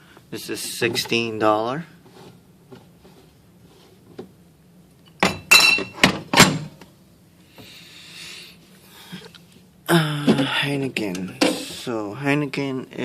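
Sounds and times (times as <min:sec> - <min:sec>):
glass bottles clinking together: 0:05.3 - 0:06.0.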